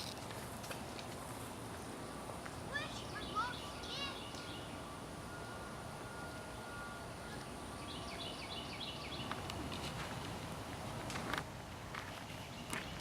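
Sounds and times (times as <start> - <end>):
outdoor background hiss: 0.0 - 13.0
songbird chirping: 2.6 - 10.3.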